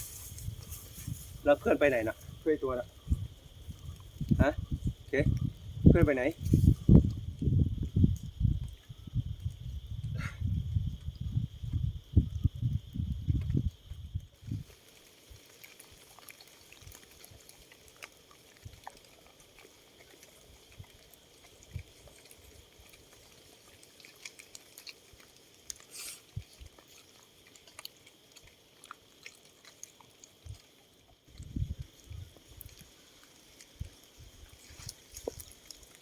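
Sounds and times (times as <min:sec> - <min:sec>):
small clicks and crackles: 0:13.3 - 0:36.0.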